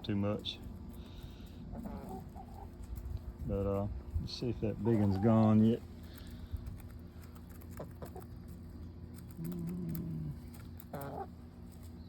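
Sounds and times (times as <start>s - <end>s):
hens calling softly: 0.9s - 2.9s, 4.7s - 5.7s, 9.4s - 11.4s.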